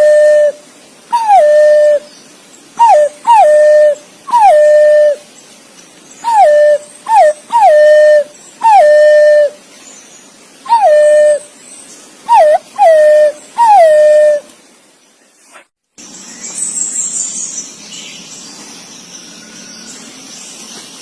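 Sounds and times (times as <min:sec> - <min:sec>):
pigeon whistled calls: 0:00.0 - 0:02.1, 0:02.8 - 0:05.2, 0:06.2 - 0:09.6, 0:10.7 - 0:11.5, 0:12.3 - 0:14.4.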